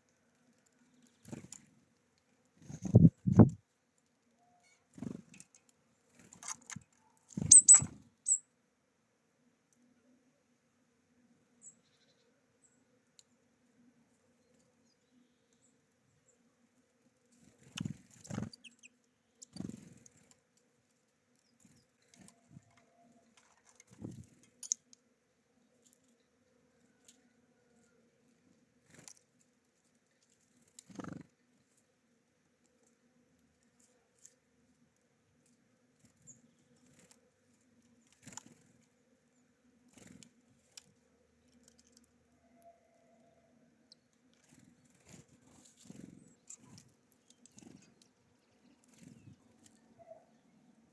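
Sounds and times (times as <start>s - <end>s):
birds pecking at feeder: 0.1s - 4.1s, 4.8s - 8.4s, 17.3s - 32.0s, 32.6s - 42.3s, 43.9s - 50.0s
birds thumping and fluttering: 0.8s - 1.8s, 4.9s - 8.3s, 17.4s - 18.8s, 19.4s - 20.4s, 21.6s - 25.0s, 30.4s - 31.4s, 39.8s - 42.1s
bird chirp: 7.3s - 8.5s, 11.6s - 12.8s, 17.7s - 19.9s, 45.8s - 50.9s
high bird peep: 7.4s - 8.4s.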